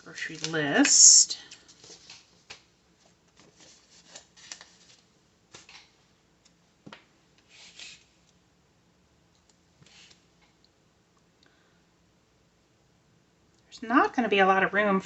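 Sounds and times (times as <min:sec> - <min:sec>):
paper rustling: 0:01.5 - 0:05.9.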